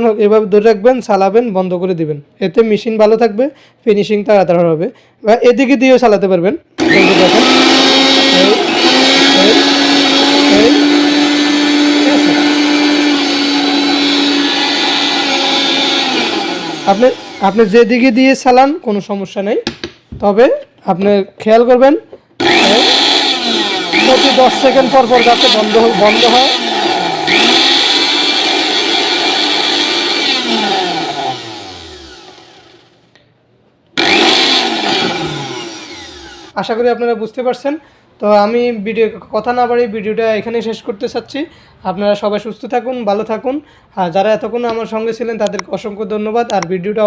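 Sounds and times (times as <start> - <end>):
blender motor humming: 6.8 - 17.8, 22.4 - 33.0, 34.0 - 36.6.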